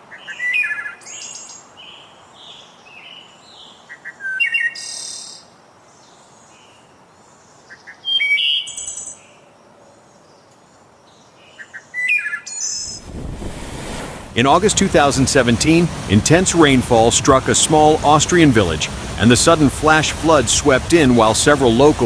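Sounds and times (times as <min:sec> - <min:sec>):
songbird chirps and trills: 0:00.1 - 0:12.9
steady low hiss: 0:12.7 - 0:22.0.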